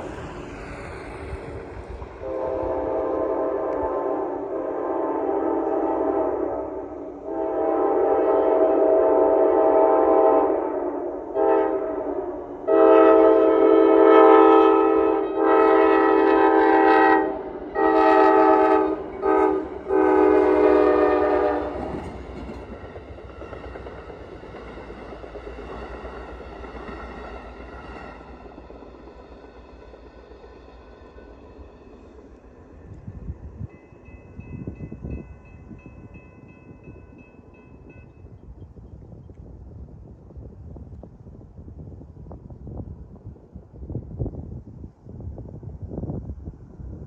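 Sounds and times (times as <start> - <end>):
train rumbling past: 0.0 - 47.0
locomotive horn blasts: 2.2 - 22.1.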